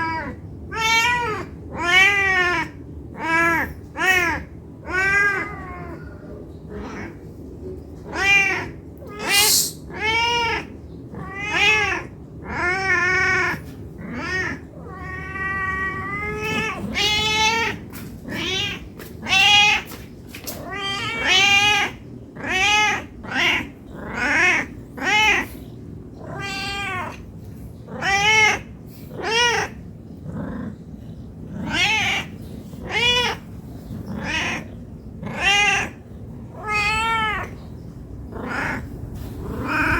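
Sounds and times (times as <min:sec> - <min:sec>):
cat meowing: 0:00.0 - 0:06.1, 0:08.1 - 0:19.9, 0:26.2 - 0:27.2, 0:27.9 - 0:29.8, 0:31.6 - 0:37.6, 0:38.4 - 0:38.9, 0:39.5 - 0:39.9.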